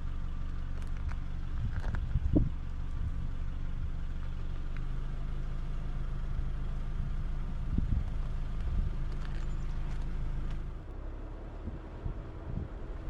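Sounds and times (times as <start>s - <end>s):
dull low bumps: 0.0s - 13.0s
road and wind noise: 0.0s - 13.0s
vehicle engine droning: 0.0s - 13.0s.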